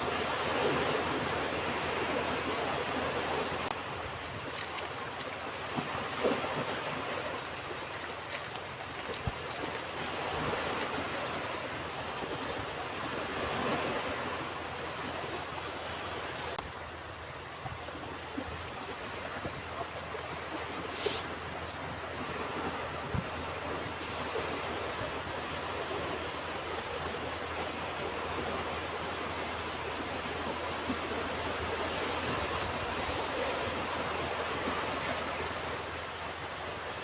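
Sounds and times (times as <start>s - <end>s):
ocean waves breaking: 20.9s - 21.3s.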